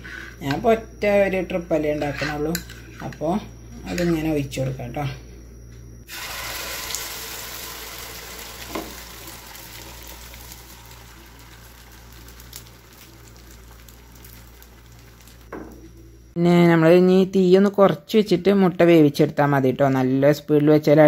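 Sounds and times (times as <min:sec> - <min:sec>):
batter sizzling in hot oil: 0:06.1 - 0:15.5.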